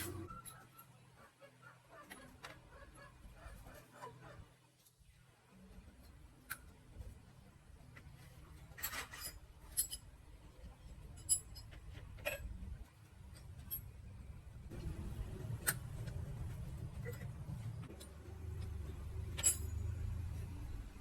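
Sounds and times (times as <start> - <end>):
low steady hum: 5.0 - 21.0
tools clinking and scraping metal: 7.9 - 14.2, 15.5 - 20.4.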